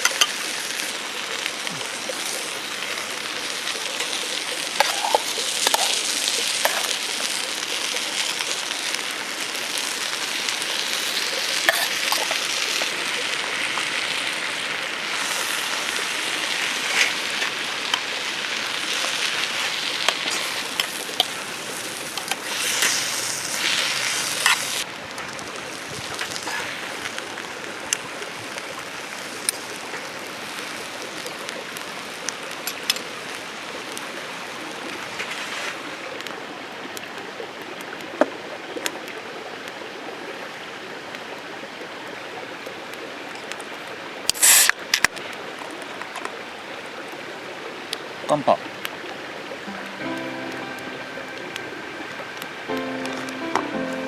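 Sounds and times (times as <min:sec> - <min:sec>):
sharp pops and spits: 0:00.0 - 0:00.5, 0:03.6 - 0:07.6, 0:10.2 - 0:13.2, 0:15.1 - 0:27.2, 0:44.3 - 0:46.3
food sizzling in a hot pan: 0:00.0 - 0:36.1, 0:44.3 - 0:44.8
rain hissing: 0:00.0 - 0:37.2, 0:44.2 - 0:47.0, 0:48.1 - 0:54.0.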